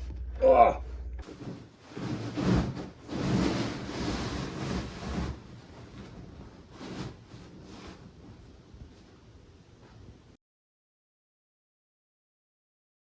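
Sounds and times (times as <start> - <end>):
tv rubbing scraping and bumping: 1.2 - 9.0.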